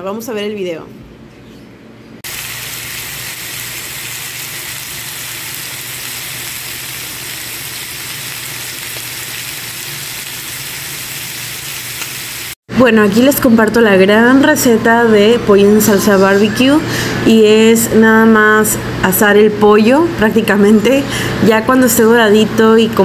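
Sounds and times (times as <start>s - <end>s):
meat sizzling in a frying pan: 2.2s - 12.6s.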